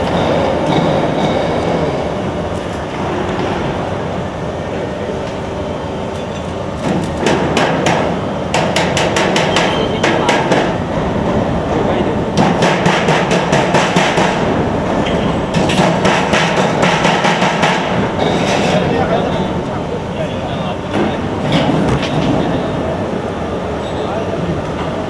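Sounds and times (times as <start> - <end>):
rapid sharp metallic knocks: 7.2 - 10.8, 12.4 - 18.7.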